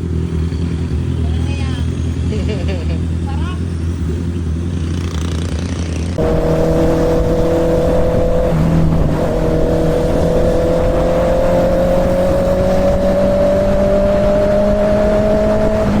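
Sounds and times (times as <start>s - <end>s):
motorcycle engine accelerating: 0.0s - 16.0s
wind noise: 6.2s - 16.0s.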